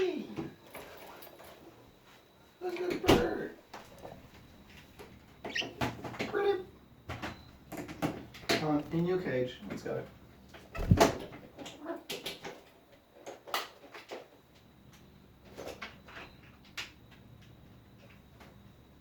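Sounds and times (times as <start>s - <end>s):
cage thumping: 10.8s - 11.4s.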